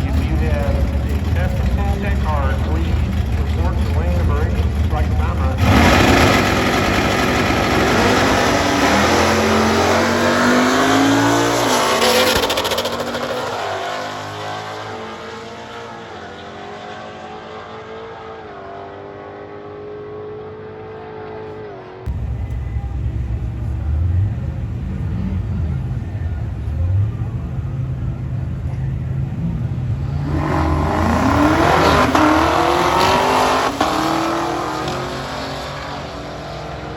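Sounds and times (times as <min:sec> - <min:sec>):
low engine rumble: 0:00.0 - 0:08.4, 0:22.1 - 0:31.7
drag racing car accelerating: 0:00.0 - 0:36.9.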